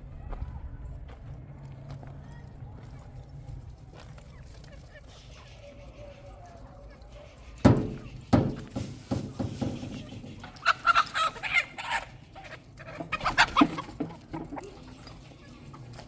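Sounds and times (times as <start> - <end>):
chickens squawking and clucking: 4.2 - 16.0
sharp knocks and thumps: 7.6 - 10.6.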